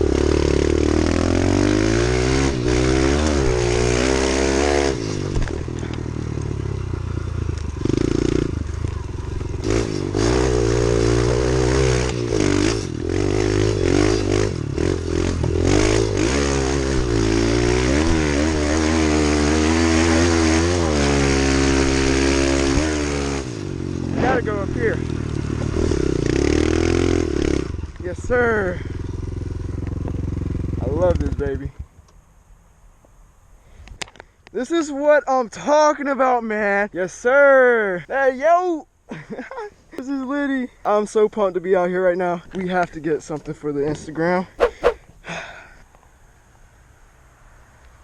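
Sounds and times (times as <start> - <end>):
small motorbike engine revving: 0.0 - 28.0, 44.6 - 45.5.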